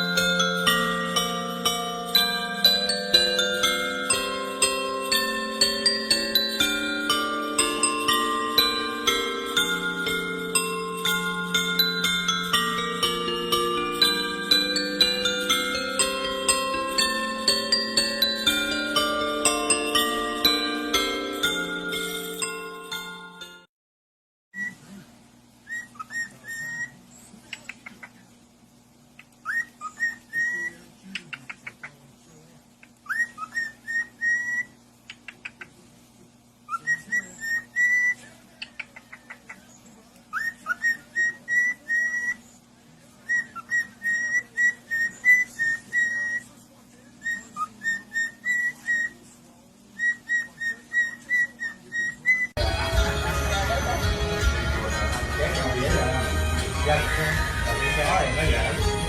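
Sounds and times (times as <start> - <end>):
parrot whistling: 2.2 - 20.8, 25.6 - 27.0, 29.2 - 30.8, 33.0 - 34.8, 36.7 - 38.3, 40.3 - 42.4, 43.2 - 46.6, 47.2 - 49.2, 50.0 - 52.6
faint steady hum: 24.6 - 59.0.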